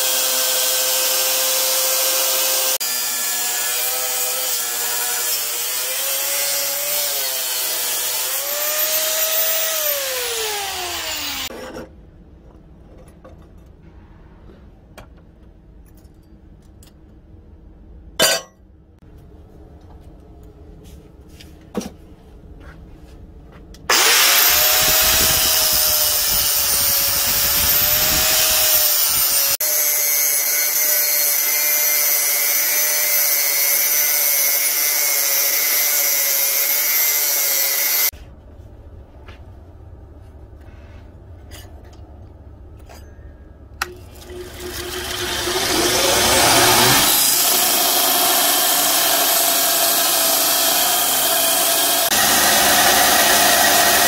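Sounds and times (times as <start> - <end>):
angle grinder cutting steel: 0.0 - 11.5, 23.9 - 38.1, 44.2 - 54.0.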